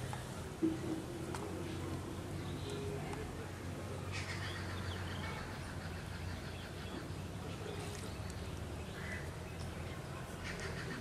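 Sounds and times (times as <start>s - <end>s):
bird calls: 0.1s - 11.0s.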